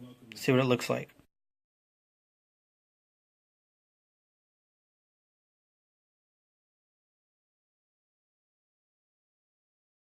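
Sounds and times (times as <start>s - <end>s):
man speaking: 0.0s - 1.3s.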